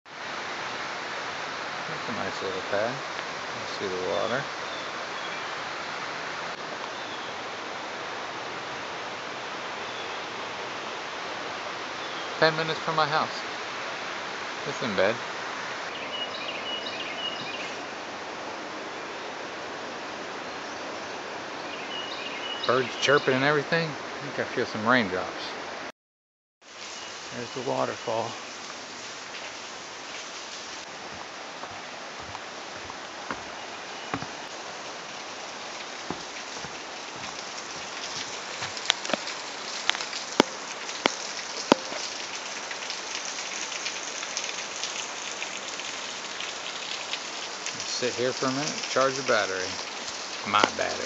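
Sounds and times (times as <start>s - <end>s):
light rain pattering: 0.1s - 25.9s, 26.6s - 51.0s
waterfall rushing: 0.2s - 20.5s, 26.9s - 51.0s
raindrop taps: 34.1s - 51.0s.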